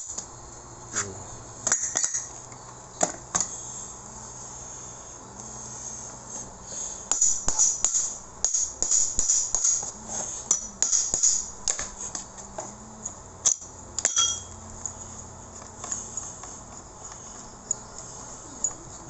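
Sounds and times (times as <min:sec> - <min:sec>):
metallic clinks of tools: 0:13.4 - 0:14.6.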